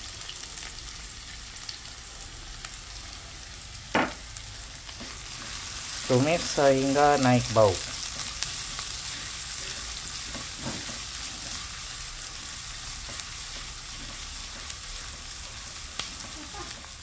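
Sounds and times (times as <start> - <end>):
vegetables sizzling in hot oil: 0.0 - 17.0
spatula scraping and tapping pan: 12.4 - 15.2.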